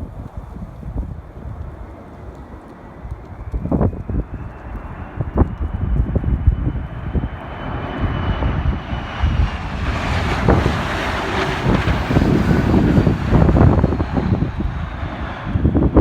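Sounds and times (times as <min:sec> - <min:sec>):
airplane engines whine and roar: 0:00.0 - 0:16.0
wind buffeting microphone: 0:00.0 - 0:16.0.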